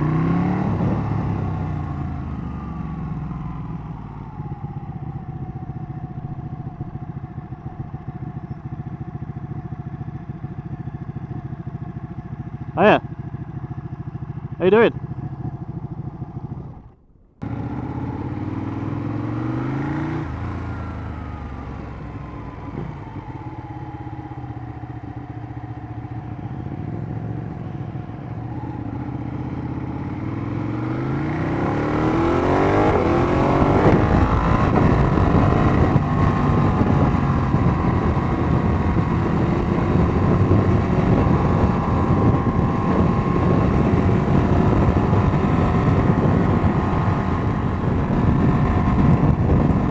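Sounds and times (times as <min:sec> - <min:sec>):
motorcycle engine accelerating: 0:00.0 - 0:49.9
wind rush over microphone: 0:31.4 - 0:49.9.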